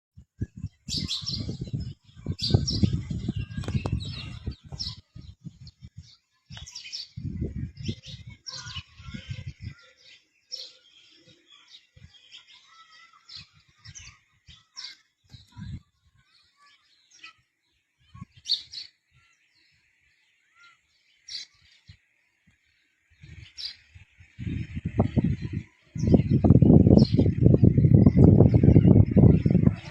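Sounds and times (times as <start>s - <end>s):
small birds chirping: 0.2s - 29.9s.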